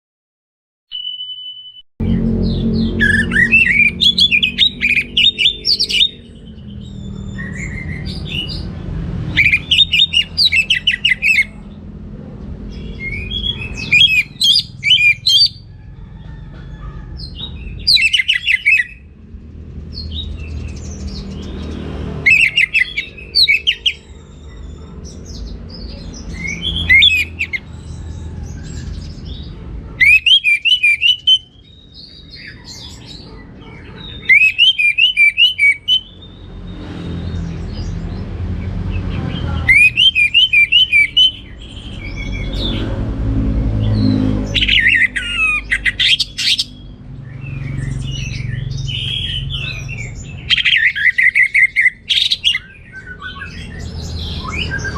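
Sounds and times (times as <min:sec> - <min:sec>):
thrush warbling song: 0:02.0 - 0:11.5.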